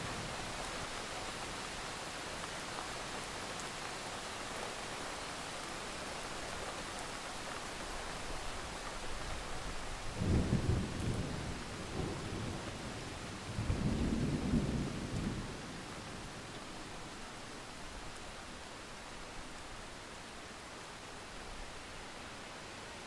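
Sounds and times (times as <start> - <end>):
rain hiss: 0.0 - 23.0
thunder rumbling: 10.2 - 15.8.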